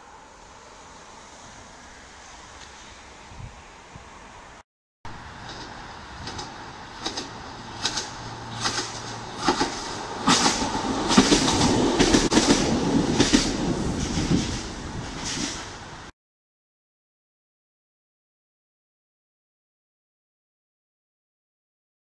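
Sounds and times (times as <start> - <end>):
diesel train engine running: 5.1 - 16.1
wheels clicking over rail joints: 5.2 - 15.9.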